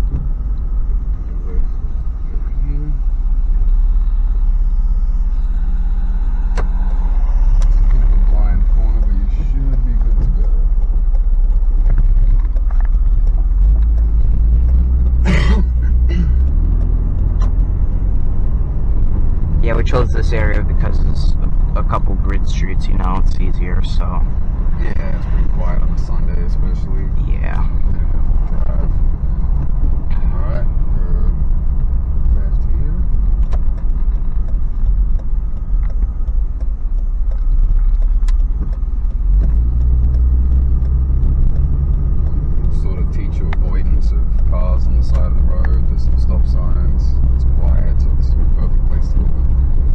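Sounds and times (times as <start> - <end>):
engine and tyre drone: 0.0 - 49.9
vehicle cabin rumble: 0.0 - 49.9.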